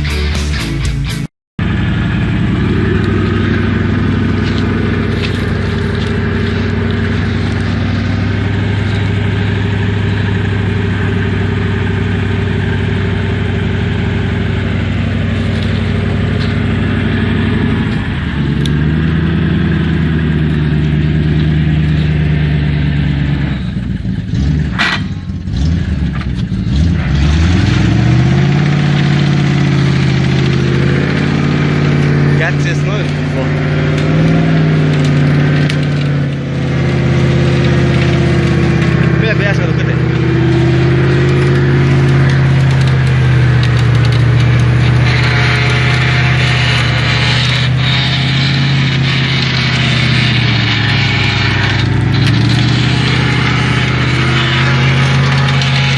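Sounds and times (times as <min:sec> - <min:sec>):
truck engine revving: 0:00.0 - 0:55.9.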